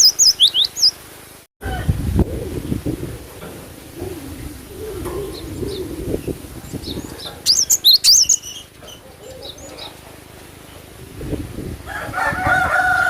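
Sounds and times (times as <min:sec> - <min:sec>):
bird high sharp chirps: 0:00.0 - 0:01.0, 0:06.7 - 0:10.0
low wavering cooing call: 0:01.6 - 0:10.2.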